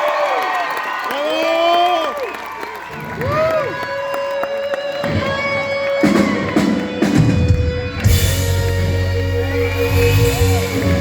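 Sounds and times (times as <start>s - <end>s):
rock band playing: 3.2s - 11.0s.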